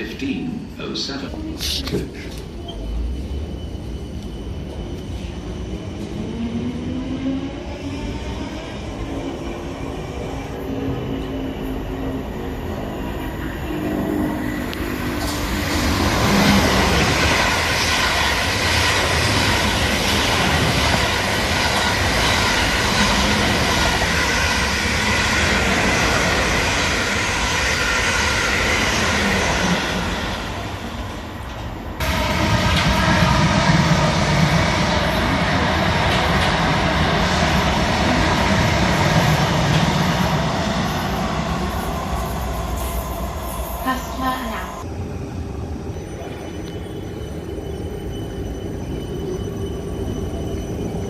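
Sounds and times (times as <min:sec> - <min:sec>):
train wheels rushing on rail: 0:00.0 - 0:44.9
another train passing: 0:00.0 - 0:51.0
train whining tones: 0:00.0 - 0:51.0.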